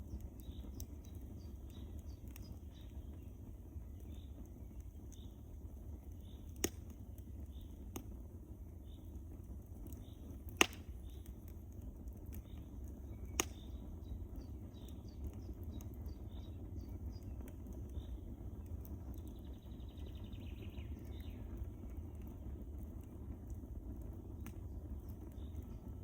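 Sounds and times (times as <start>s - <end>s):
sharp fire pops: 0.0s - 26.0s
wood fire crackling: 0.0s - 26.0s.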